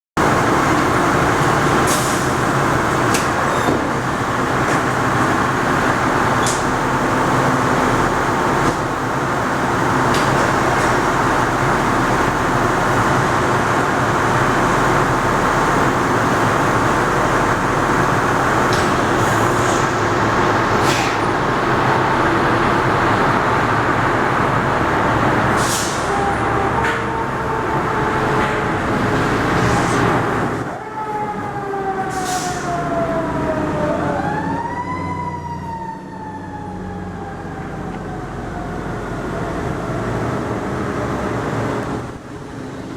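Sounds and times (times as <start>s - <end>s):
heavy diesel engines running: 0.2s - 42.9s
air-brake hisses: 20.8s - 21.4s, 25.6s - 26.1s.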